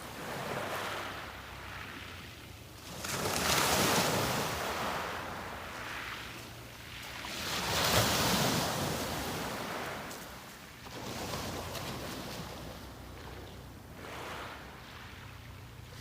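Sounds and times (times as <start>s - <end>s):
low rumble of the sea: 0.0s - 16.0s
waves breaking on a beach: 0.0s - 16.0s.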